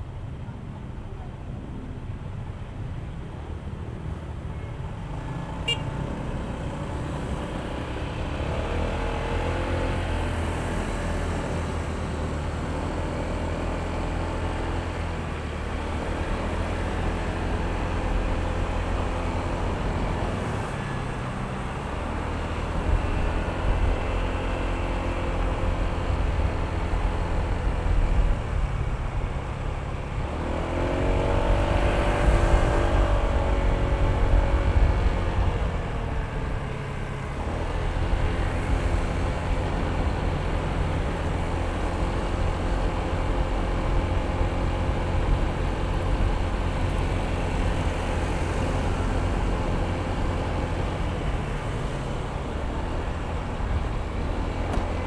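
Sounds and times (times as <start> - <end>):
road and traffic rumble: 0.0 - 55.0
scooter engine running: 14.2 - 55.0.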